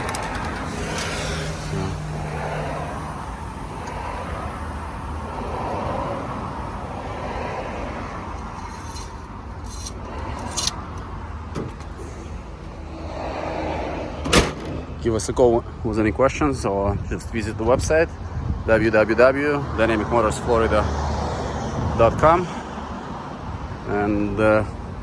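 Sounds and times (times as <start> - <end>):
truck engine idling: 0.0 - 16.8.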